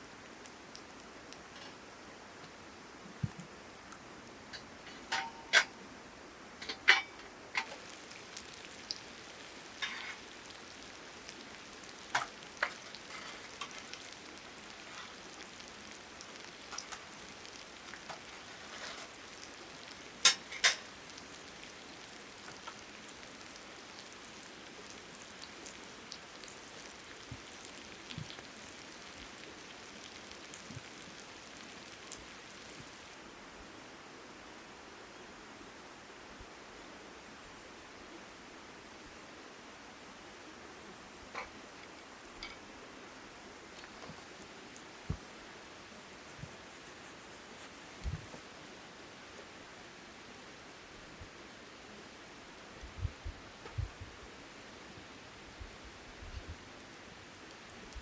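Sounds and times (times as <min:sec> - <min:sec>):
sharp pops and crackles: 0:06.6 - 0:21.5, 0:43.8 - 0:51.8, 0:52.4 - 0:54.7
meat sizzling on a grill: 0:06.9 - 0:33.2, 0:43.9 - 0:58.0.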